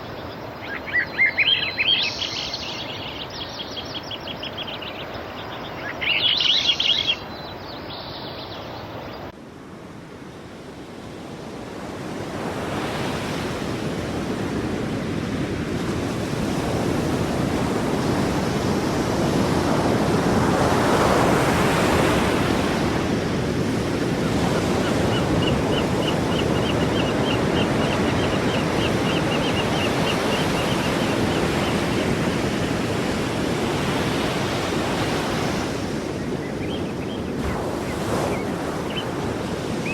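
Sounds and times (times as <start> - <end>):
waves breaking on shore: 9.2 - 39.9.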